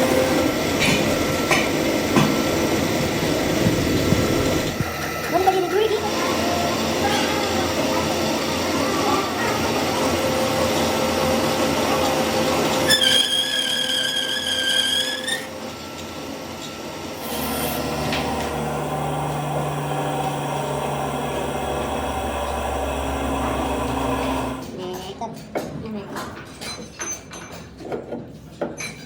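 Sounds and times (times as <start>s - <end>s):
power tool whine: 0.0s - 24.7s
low machine hum: 14.9s - 24.8s.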